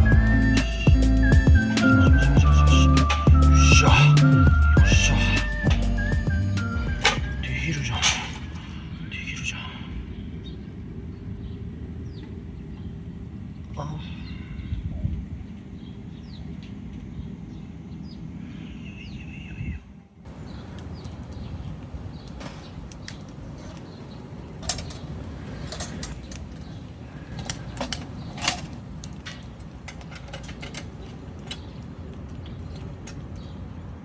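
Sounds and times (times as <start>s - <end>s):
birds chirping faintly: 0.0s - 34.0s
wood fire crackling: 20.3s - 34.0s.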